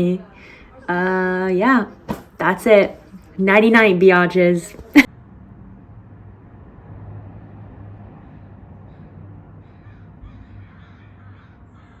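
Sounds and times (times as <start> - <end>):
birds calling: 8.8 - 12.0.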